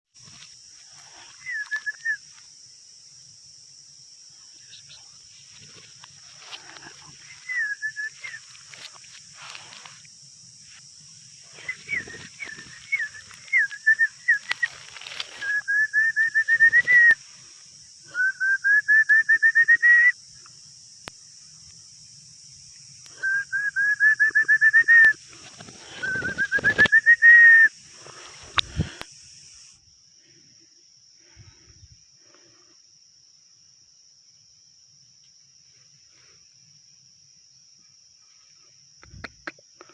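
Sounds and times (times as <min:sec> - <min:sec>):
steady high hiss: 0:00.2 - 0:30.1
songbird singing: 0:00.2 - 0:32.6.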